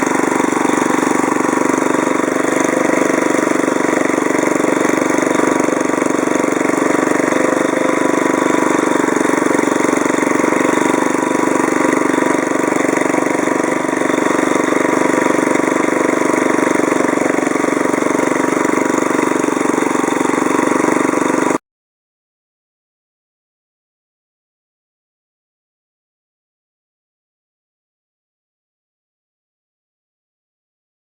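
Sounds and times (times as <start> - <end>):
lawnmower engine running: 0.0 - 21.6.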